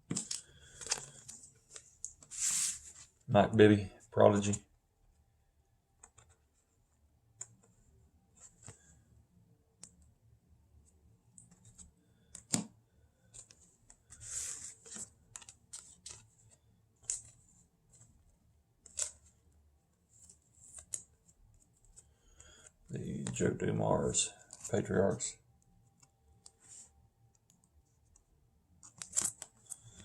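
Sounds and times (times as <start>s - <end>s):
trading cards clicking and rustling: 0.0s - 2.9s, 11.4s - 17.4s, 18.8s - 19.3s, 28.8s - 30.0s
cards sliding: 0.1s - 3.1s, 13.3s - 17.3s, 18.8s - 19.3s, 28.8s - 30.0s.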